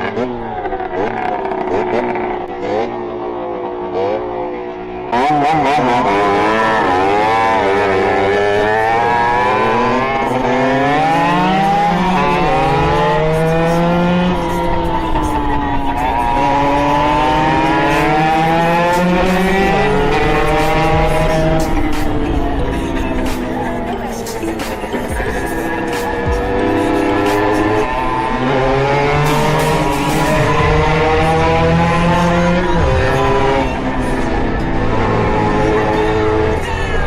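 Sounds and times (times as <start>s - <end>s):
two-stroke engine revving: 0.0s - 37.0s.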